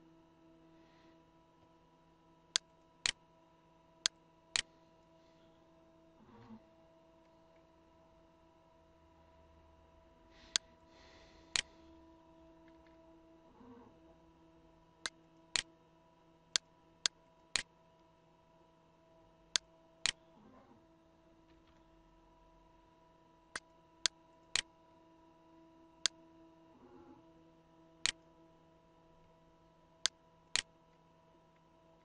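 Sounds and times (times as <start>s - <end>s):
faint steady hum: 0.0s - 32.0s
computer mouse clicks: 11.5s - 11.7s.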